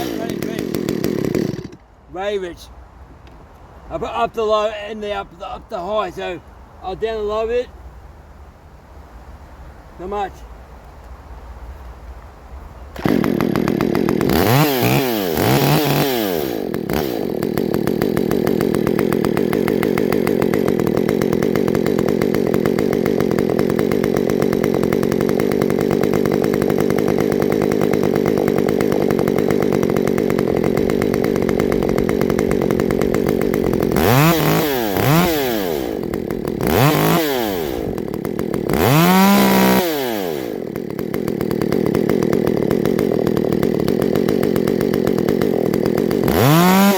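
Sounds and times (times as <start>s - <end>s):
chainsaw revving and idling: 0.0s - 2.3s, 12.9s - 46.9s.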